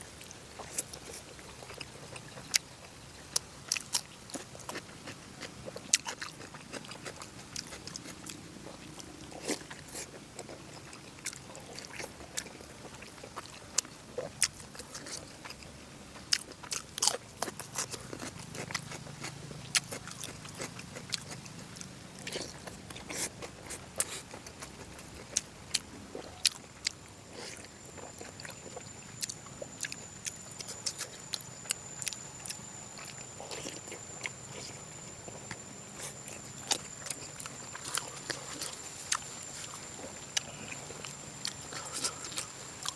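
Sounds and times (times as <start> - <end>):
person chewing food: 0.1 - 42.9
faint high whine: 20.5 - 42.9.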